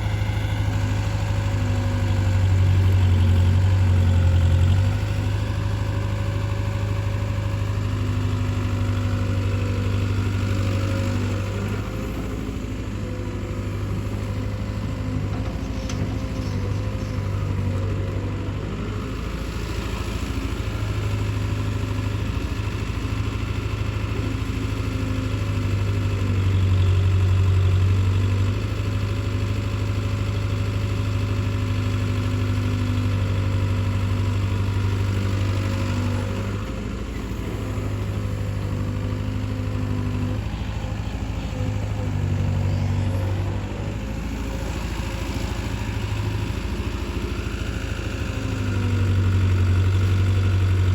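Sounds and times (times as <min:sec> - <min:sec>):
diesel machinery engine humming: 0:00.0 - 0:50.9.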